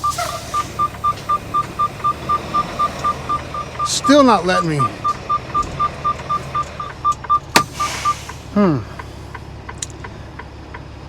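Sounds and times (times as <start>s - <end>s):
warning chime beeping: 0.0s - 8.2s
truck engine idling: 0.0s - 11.0s.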